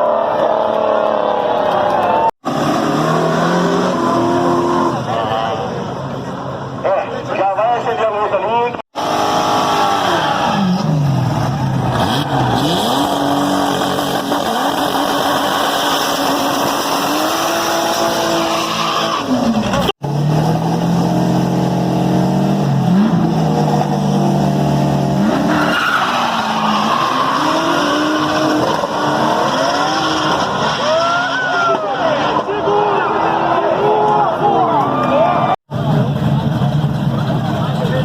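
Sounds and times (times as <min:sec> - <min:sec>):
drag car engine revving: 0:08.9 - 0:32.7
tires skidding: 0:09.0 - 0:19.9, 0:22.7 - 0:37.9.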